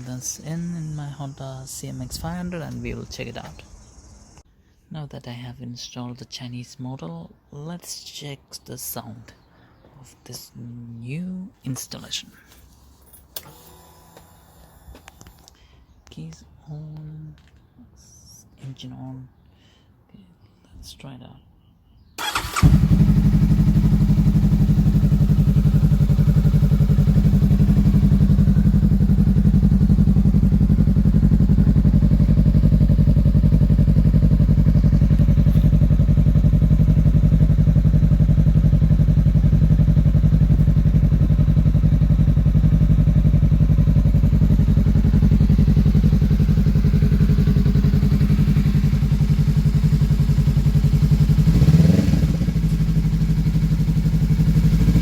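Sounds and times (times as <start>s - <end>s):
motorcycle engine idling: 0.0s - 4.4s, 22.2s - 55.0s.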